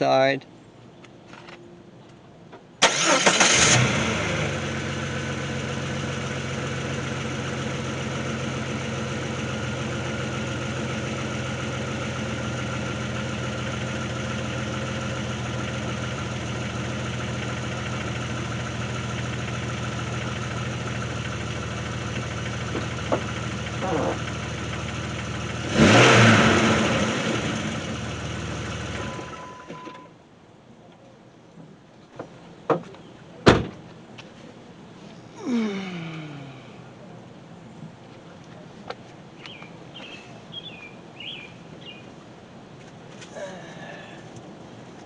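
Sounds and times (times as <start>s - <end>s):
car engine starting and idling: 2.8s - 30.2s.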